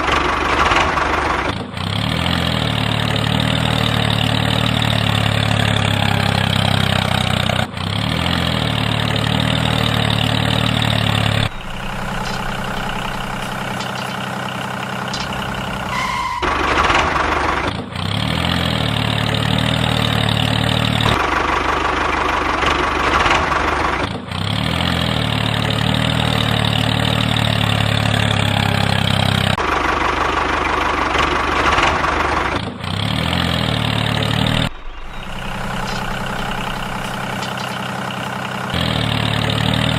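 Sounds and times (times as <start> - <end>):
engine humming: 0.0 - 39.9
high whine: 34.7 - 38.7.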